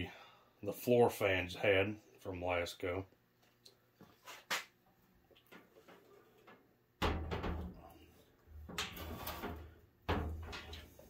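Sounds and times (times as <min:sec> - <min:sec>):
knocks and rattles: 0:07.0 - 0:08.0, 0:08.6 - 0:11.0.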